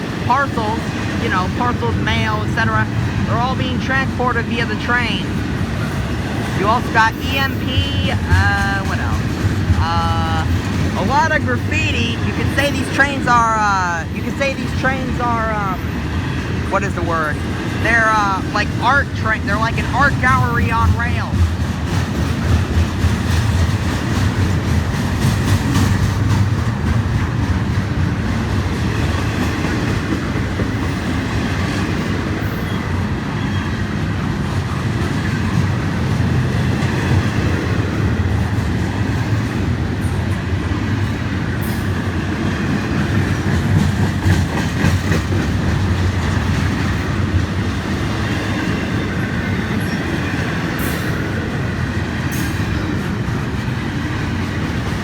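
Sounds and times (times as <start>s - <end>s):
freight train wheels rumbling: 0.0s - 55.0s
wheels clicking over rail joints: 5.3s - 13.4s, 20.4s - 55.0s.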